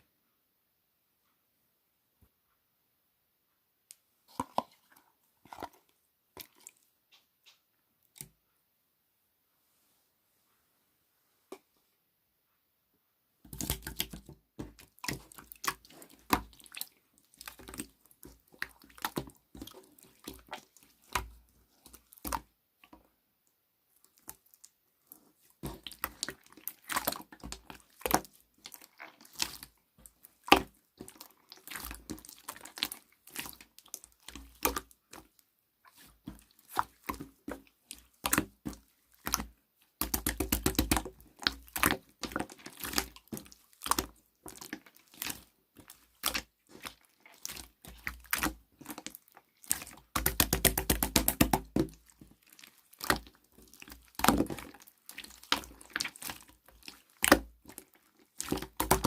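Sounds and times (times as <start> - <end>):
slime squished by hand: 13.5 - 23.0, 24.0 - 59.0
wet clicks and pops: 37.9 - 46.4, 47.5 - 52.2, 58.4 - 59.0.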